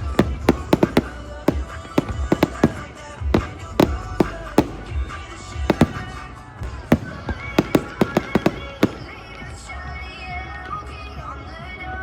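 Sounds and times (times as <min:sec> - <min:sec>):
fireworks bangs: 0:00.0 - 0:09.4
music playing: 0:00.0 - 0:12.0.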